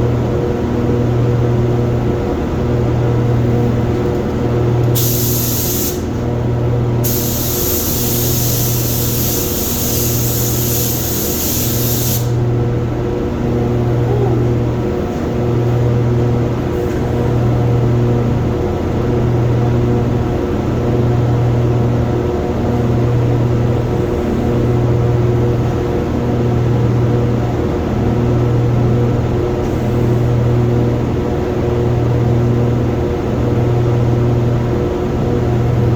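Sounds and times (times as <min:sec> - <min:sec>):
steady low hum: 0:00.0 - 0:35.9
paint spray gun hissing: 0:05.0 - 0:06.2, 0:07.0 - 0:12.4.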